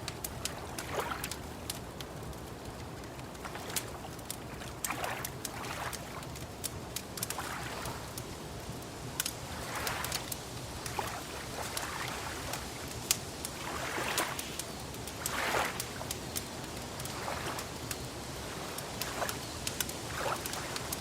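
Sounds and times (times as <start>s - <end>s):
wood fire crackling: 0.0s - 21.0s
water lapping: 0.1s - 8.3s, 9.2s - 21.0s.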